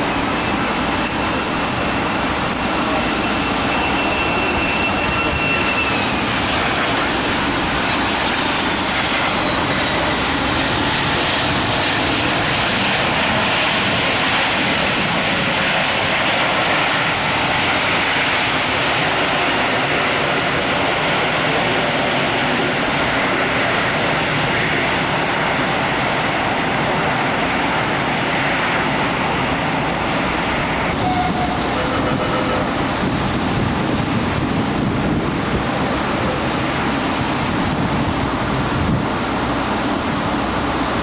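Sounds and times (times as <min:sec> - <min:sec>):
jet engine roar: 0:00.0 - 0:41.0
jet engine whine: 0:00.0 - 0:41.0.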